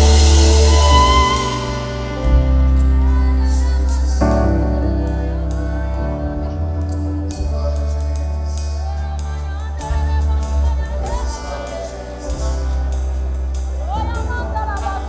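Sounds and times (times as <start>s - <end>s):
cymbal and percussion hits: 0.0s - 3.2s
band with deep bass: 0.0s - 15.0s
gospel singing: 0.0s - 15.0s.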